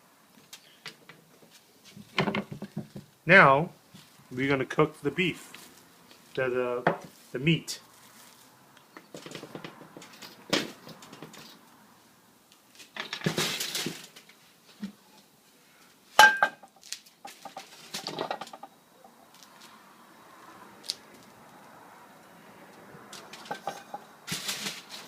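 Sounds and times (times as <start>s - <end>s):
ringing metal clang: 16.2s - 16.6s
metal cookware clattering: 23.5s - 24.0s.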